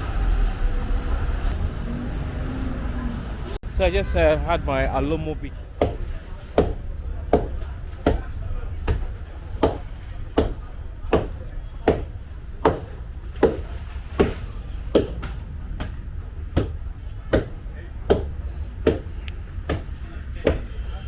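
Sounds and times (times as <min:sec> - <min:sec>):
pestle pounding in wooden mortar: 0:05.8 - 0:20.8.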